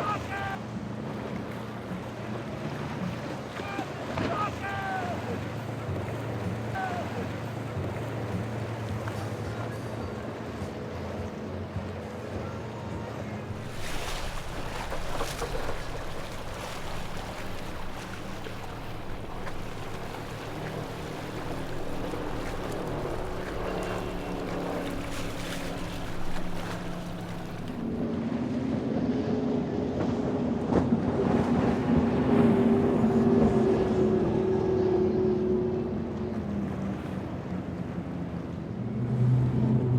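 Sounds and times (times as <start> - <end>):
waves washing: 0.0 - 29.0
motorboat engines running: 0.0 - 39.9
wind: 0.0 - 39.9.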